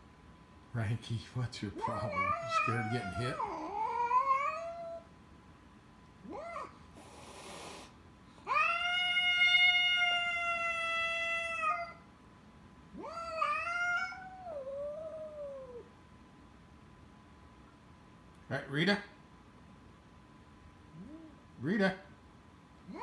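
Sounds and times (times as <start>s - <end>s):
cat hissing: 1.7s - 5.1s, 6.3s - 12.0s, 13.0s - 15.9s
cat yowling: 1.8s - 5.1s, 6.2s - 7.7s, 8.4s - 12.1s, 12.9s - 15.9s.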